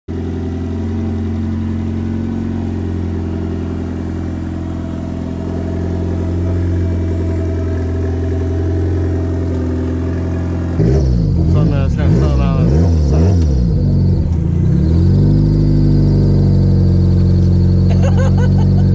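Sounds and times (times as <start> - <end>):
car engine idling: 0.1 - 18.9.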